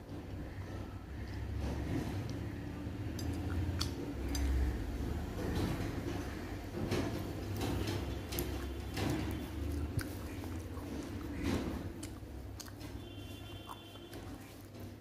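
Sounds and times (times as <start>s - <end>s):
chewing food: 0.2s - 15.0s.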